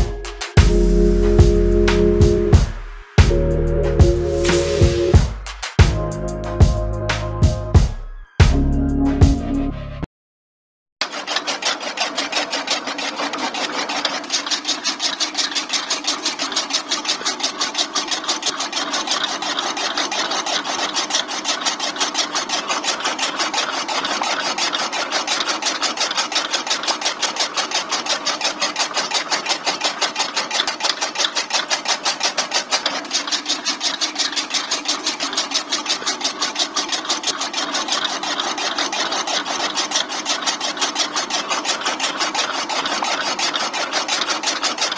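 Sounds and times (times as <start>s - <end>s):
chaff cutter mechanical clatter: 0.0s - 1.3s, 11.0s - 44.9s.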